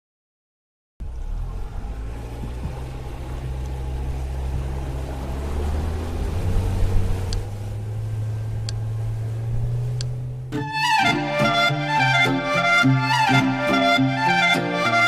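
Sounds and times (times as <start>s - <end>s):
low engine-like rumble: 1.0s - 10.6s.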